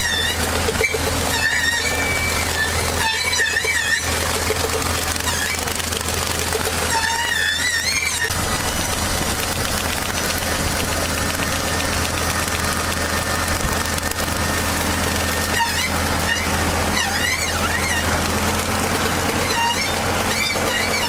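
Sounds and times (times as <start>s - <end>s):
wavering high-pitched squeal: 0.0s - 6.1s, 6.7s - 9.0s, 13.2s - 21.0s
machine engine running: 0.0s - 21.0s.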